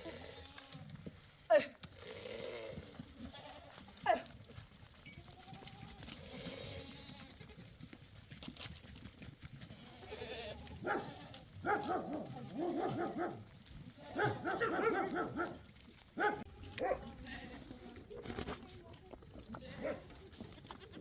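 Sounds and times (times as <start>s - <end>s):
goats bleating: 0.0s - 0.9s, 2.0s - 4.3s, 5.2s - 7.7s, 9.6s - 13.1s, 13.8s - 15.4s, 16.2s - 18.0s, 19.4s - 21.0s.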